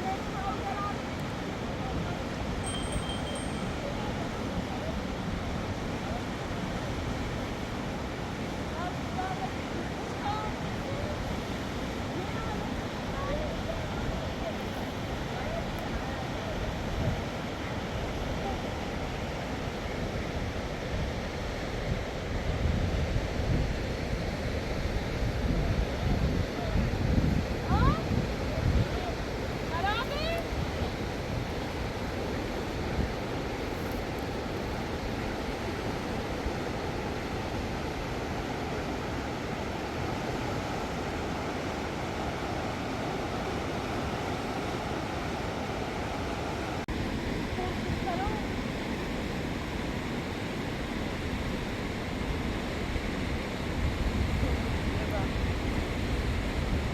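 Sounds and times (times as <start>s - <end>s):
fast-flowing water rushing: 0.0s - 56.9s
wind buffeting microphone: 21.0s - 35.6s.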